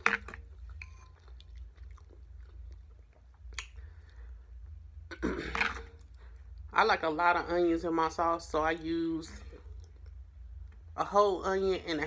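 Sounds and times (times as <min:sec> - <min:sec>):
person chewing food: 0:00.0 - 0:06.7, 0:09.5 - 0:10.8
mouth clicks: 0:03.5 - 0:03.9.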